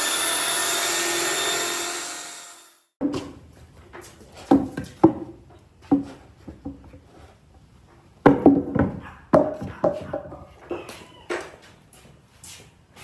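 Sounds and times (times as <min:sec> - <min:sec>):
hollow wooden knocks: 0:04.4 - 0:07.0, 0:08.2 - 0:11.6.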